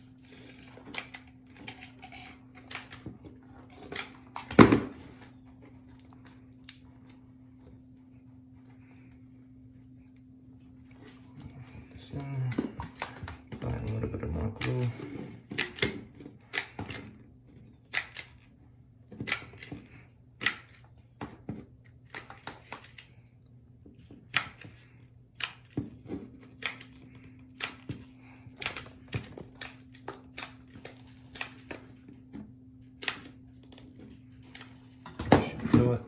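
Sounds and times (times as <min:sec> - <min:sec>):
faint low hum: 0:00.0 - 0:22.3.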